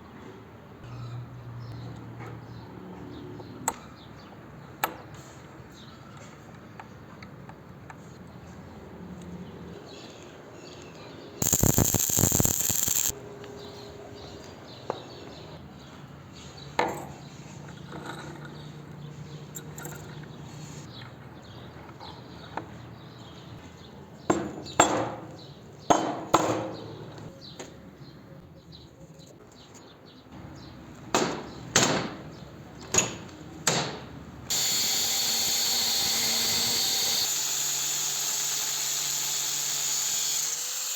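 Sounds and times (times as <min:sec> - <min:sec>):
power tool hissing burst: 0:11.4 - 0:13.1, 0:34.5 - 0:40.9.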